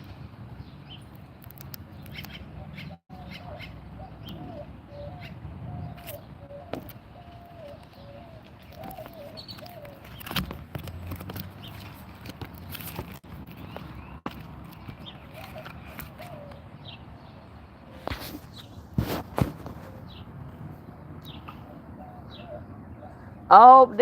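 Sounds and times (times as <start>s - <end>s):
sharp clicks and taps: 1.1s - 2.4s
bird calling low wavering notes: 2.1s - 10.2s, 21.0s - 23.7s.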